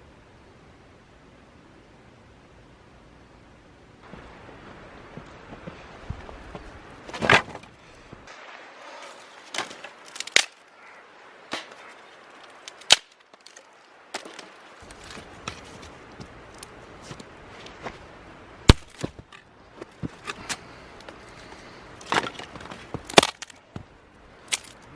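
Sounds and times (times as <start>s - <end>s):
firewood being split: 7.1s - 8.3s, 8.9s - 10.7s, 11.5s - 18.0s, 18.6s - 24.9s.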